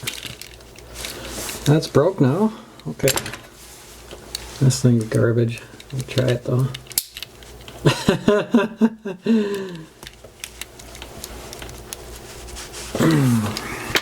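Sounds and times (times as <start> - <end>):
man humming: 13.0 - 14.0.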